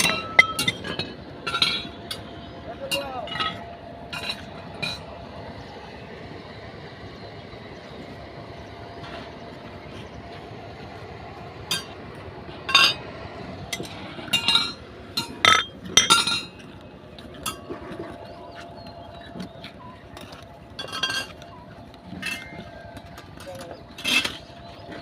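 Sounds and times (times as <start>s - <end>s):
hard objects clinking together: 13.8s - 16.7s, 20.2s - 25.0s.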